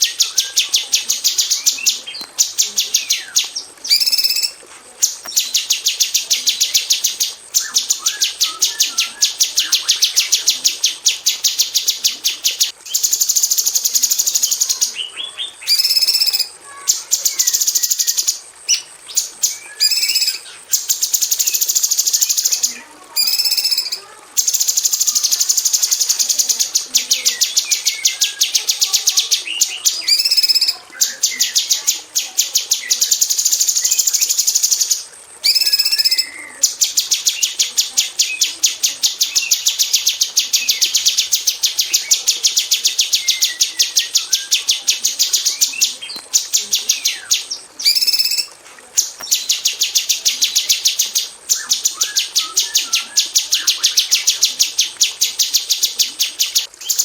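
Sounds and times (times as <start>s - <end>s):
bird singing fast high chips: 0.0s - 57.0s
rising whistled bird notes: 2.9s - 4.6s, 6.8s - 10.3s, 15.6s - 16.6s, 17.4s - 20.5s, 35.4s - 36.6s.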